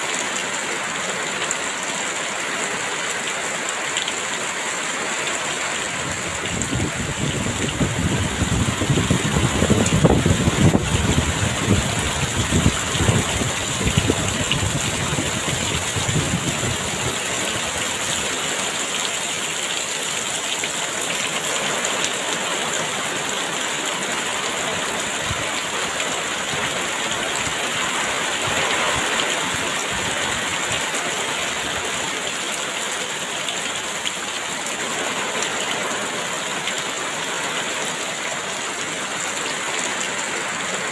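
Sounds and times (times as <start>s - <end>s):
heavy rain falling: 0.0s - 40.9s
strong gusting wind: 5.9s - 18.2s.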